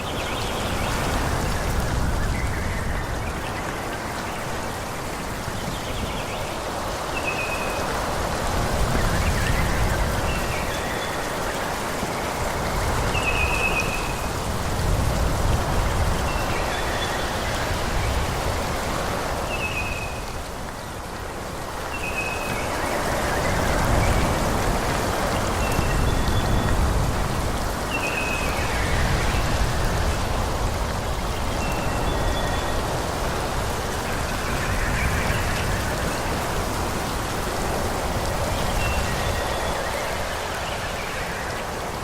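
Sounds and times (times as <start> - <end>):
wind through trees: 0.0 - 42.0.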